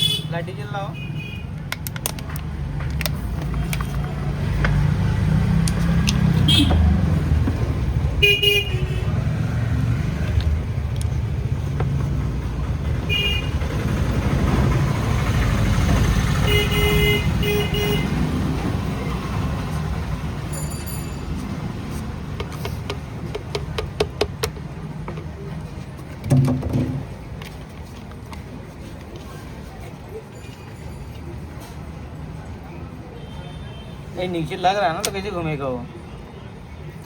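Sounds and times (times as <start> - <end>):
road traffic rumble: 0.0 - 37.0
vehicle horn toots: 6.5 - 6.8, 8.2 - 9.1, 13.1 - 13.6, 16.4 - 18.2.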